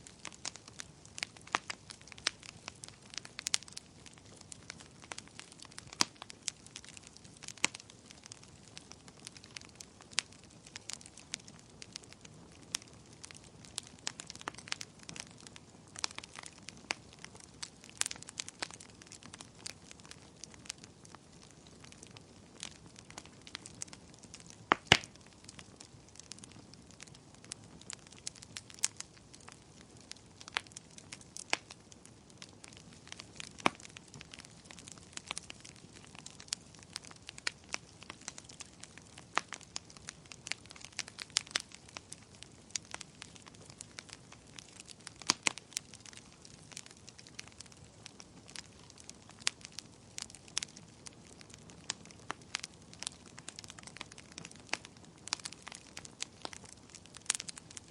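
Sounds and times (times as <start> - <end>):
faint low hiss: 0.0 - 55.6
campfire crackling: 0.0 - 57.9
sharp pops and snaps: 22.6 - 27.0, 32.4 - 57.9.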